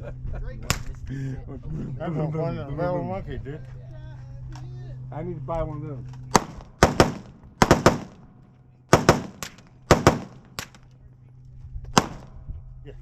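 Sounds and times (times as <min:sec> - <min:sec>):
gunshots: 0:06.3 - 0:08.3, 0:08.9 - 0:10.8, 0:12.0 - 0:12.3.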